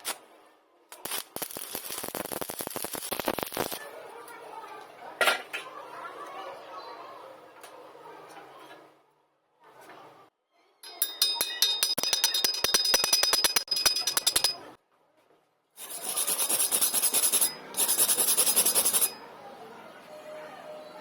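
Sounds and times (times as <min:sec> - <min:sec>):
wire brush scrubbing metal: 0:15.8 - 0:19.2.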